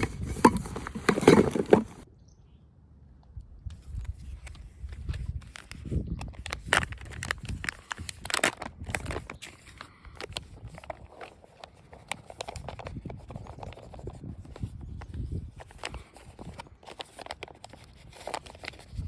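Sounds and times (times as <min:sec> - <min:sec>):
clicks and scrapes: 0:00.0 - 0:02.0
wind rumble on microphone: 0:03.2 - 0:11.2, 0:12.1 - 0:16.9, 0:17.8 - 0:19.0
meal pouch crinkling: 0:04.4 - 0:19.0.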